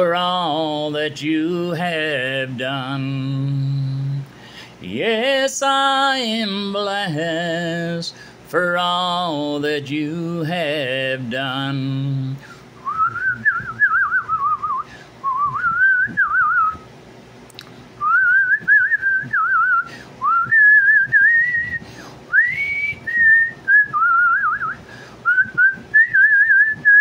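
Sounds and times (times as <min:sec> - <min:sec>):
person whistling a tune: 0:12.8 - 0:16.8, 0:18.0 - 0:27.0.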